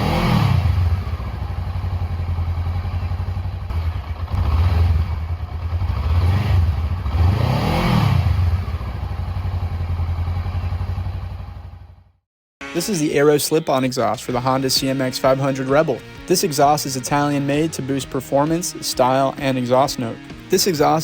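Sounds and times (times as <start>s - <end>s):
motorcycle engine idling and revving: 0.0s - 12.3s, 14.0s - 21.0s.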